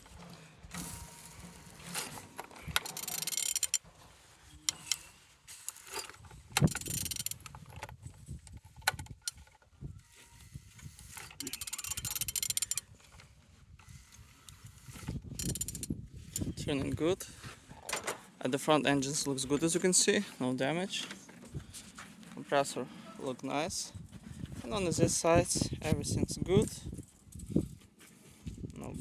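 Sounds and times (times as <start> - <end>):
rapid metallic clicking and scraping: 0.0 - 9.6, 10.9 - 13.3, 14.1 - 16.8.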